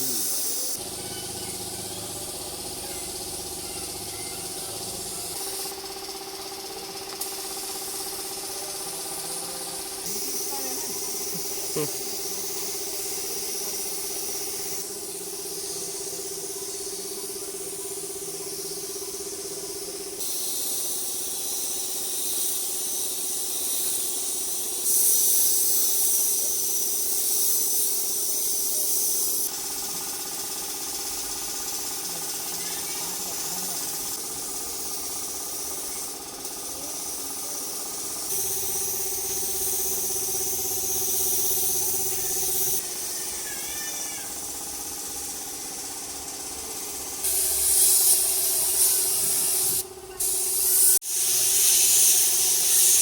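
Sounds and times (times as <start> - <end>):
spray gun hissing: 0.0 - 53.0.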